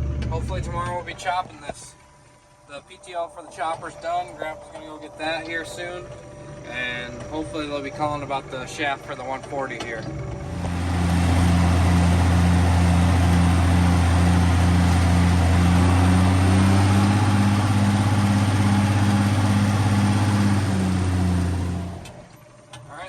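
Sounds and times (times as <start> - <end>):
tractor engine running: 10.4 - 22.4.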